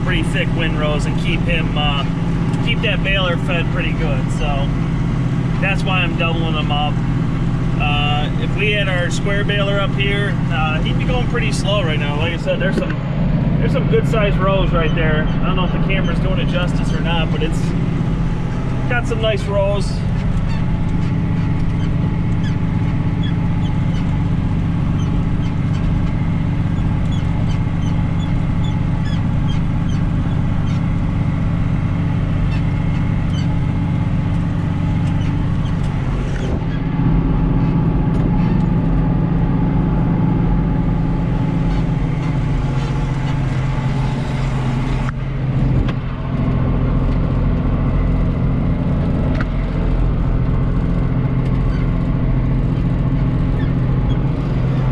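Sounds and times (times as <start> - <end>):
tractor diesel engine running: 0.0 - 54.9.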